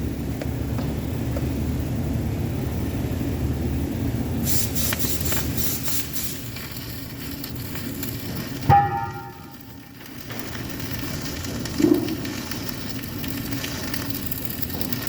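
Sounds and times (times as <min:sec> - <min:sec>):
low steady rumble: 0:00.0 - 0:15.0
welding arc crackling and hissing: 0:00.0 - 0:15.0
metal clang ringing: 0:08.7 - 0:09.6.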